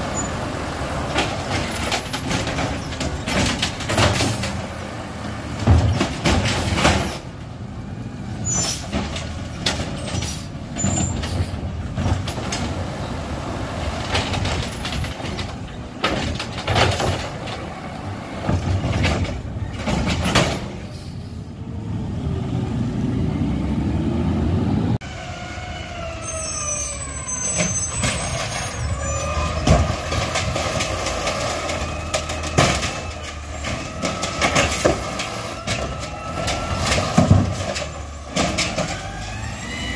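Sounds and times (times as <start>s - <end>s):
diesel engines running: 0.0s - 39.9s
clanks and knocks of bins: 1.0s - 4.8s, 5.4s - 7.5s, 8.5s - 13.0s, 13.9s - 20.9s, 27.6s - 39.4s.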